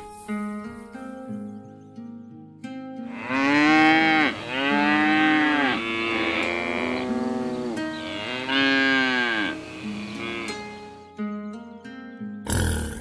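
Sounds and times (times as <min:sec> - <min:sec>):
cow mooing: 0:03.1 - 0:10.9.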